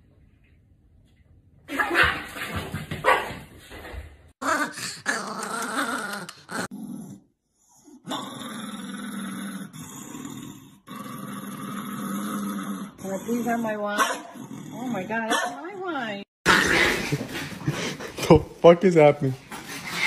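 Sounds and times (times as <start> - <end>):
small dog growling: 4.4 - 15.7, 16.4 - 17.4.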